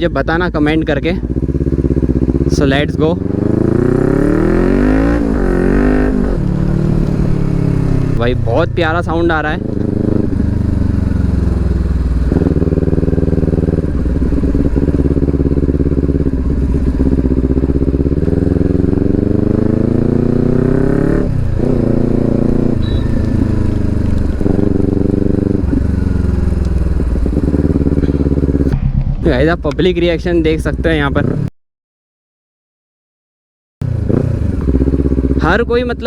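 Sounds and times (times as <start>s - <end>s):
motorcycle engine revving: 0.0s - 31.5s, 33.8s - 36.0s.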